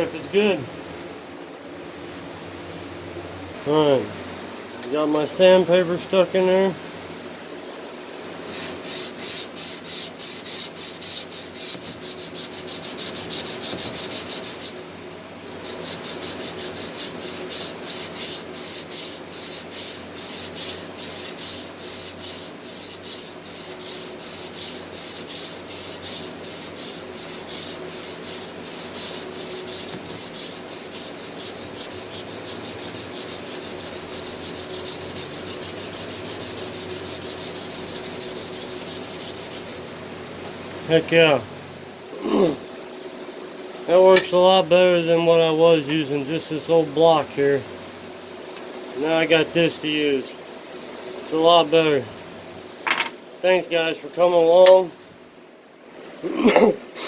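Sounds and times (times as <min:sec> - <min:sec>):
sandpaper scraping strokes: 0:08.4 - 0:40.2.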